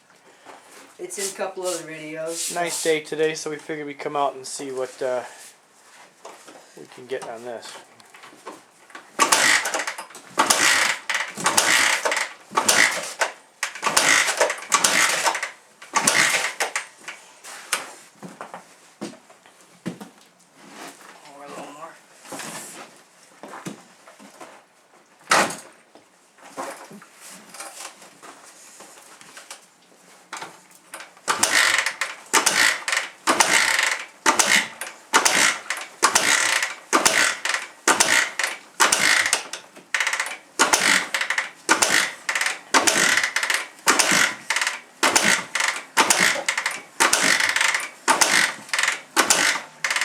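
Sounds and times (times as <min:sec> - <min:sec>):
motorcycle engine kick-starting: 0:09.1 - 0:17.2, 0:30.9 - 0:50.0.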